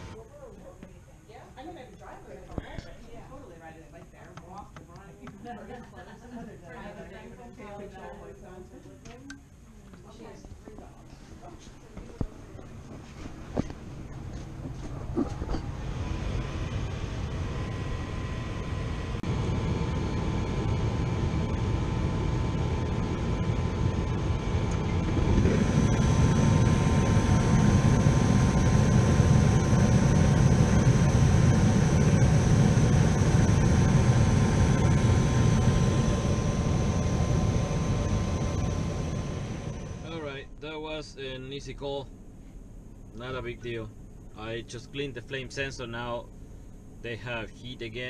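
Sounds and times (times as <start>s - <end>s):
furnace motor whine: 0.0s - 0.5s, 11.3s - 48.0s.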